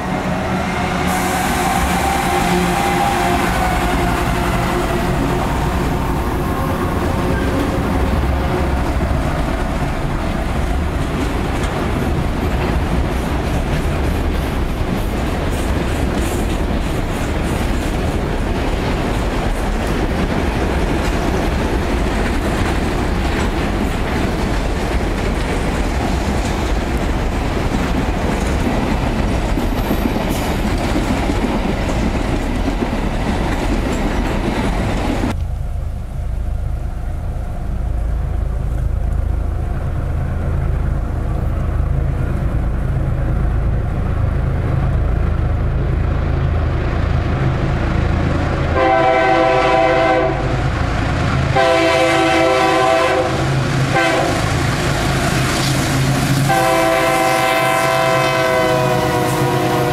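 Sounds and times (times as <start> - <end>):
rhythmic train wheel clatter: 0.0 - 35.5
diesel locomotive drone: 0.0 - 59.9
train wagons rumbling: 0.0 - 59.9.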